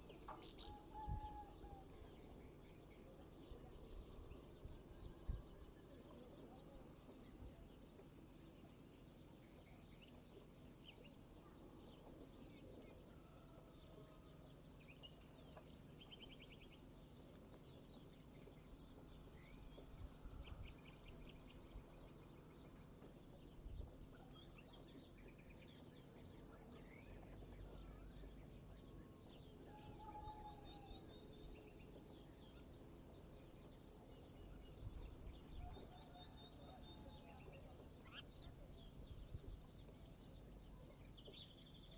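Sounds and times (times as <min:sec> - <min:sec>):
birds chirping and calling: 0:00.0 - 0:02.4.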